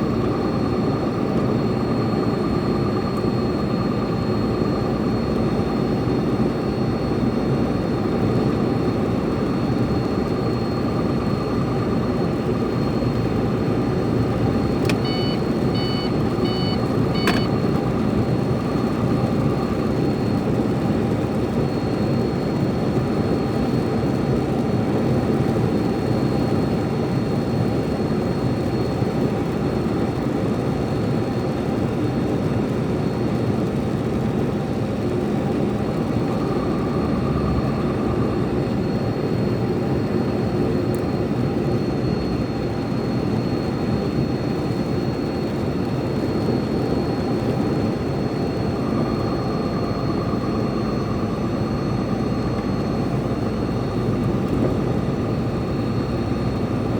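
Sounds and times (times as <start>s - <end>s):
truck diesel engine drone: 0.0s - 56.9s.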